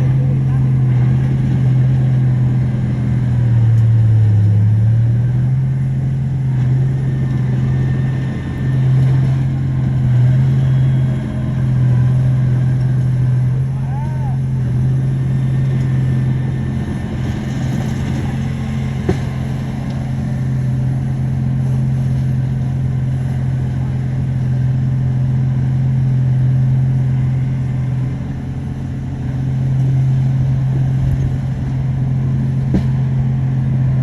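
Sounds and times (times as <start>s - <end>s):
heavy diesel engine humming: 0.0s - 34.0s
sharp knocks: 18.9s - 19.6s.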